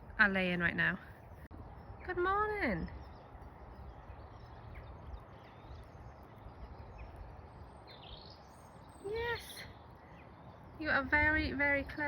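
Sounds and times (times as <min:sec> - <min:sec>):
steady low rumble: 0:00.0 - 0:09.1.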